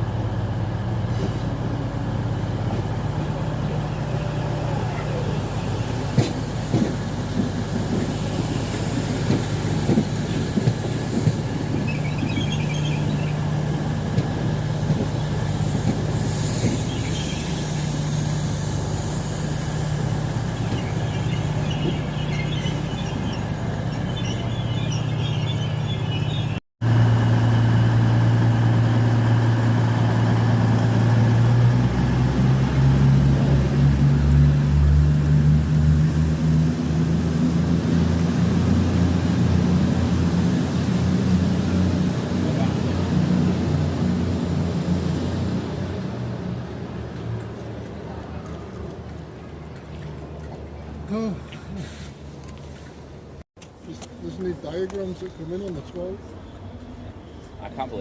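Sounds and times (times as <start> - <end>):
train drone: 0.0 - 49.3
train wheels squealing: 11.7 - 13.4.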